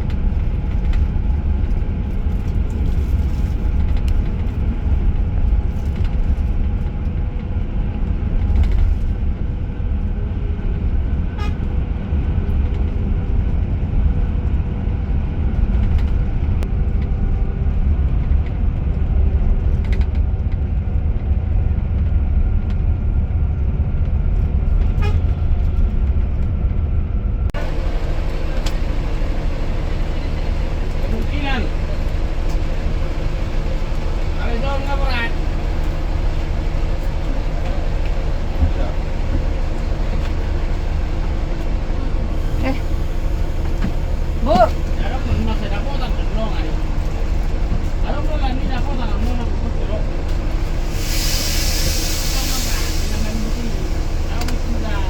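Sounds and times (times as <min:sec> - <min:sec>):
coach engine drone: 0:00.0 - 0:55.0
road noise: 0:00.0 - 0:55.0.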